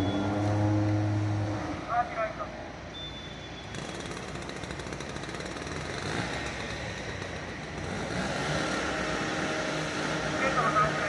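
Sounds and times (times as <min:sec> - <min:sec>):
vehicle engine rattling: 0:03.6 - 0:11.0.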